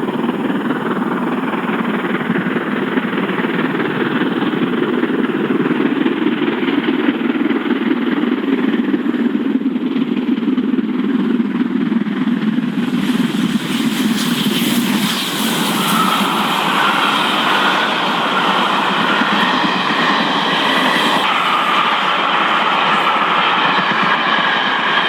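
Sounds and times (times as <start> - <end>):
vehicle engine rumbling: 12.7 - 25.0.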